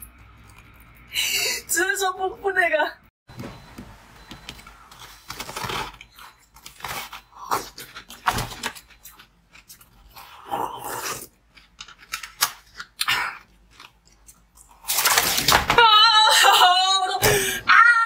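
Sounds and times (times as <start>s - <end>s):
crunching and chewing frozen treat: 5.0s - 15.4s.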